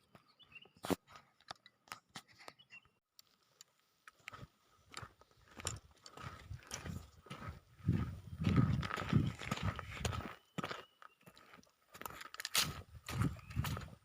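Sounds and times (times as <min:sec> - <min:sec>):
footsteps on dry ground litter: 0:03.2 - 0:14.0
faint crunches and clicks: 0:11.5 - 0:12.8.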